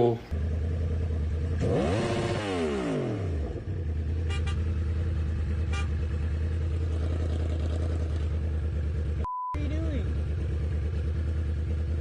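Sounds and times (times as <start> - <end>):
vehicle engine droning: 0.0 - 12.0
short beeps: 9.2 - 9.6.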